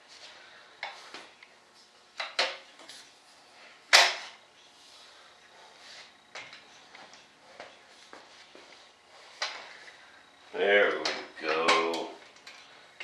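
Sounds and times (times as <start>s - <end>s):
saw latches clacking and knocking: 10.9s - 12.6s.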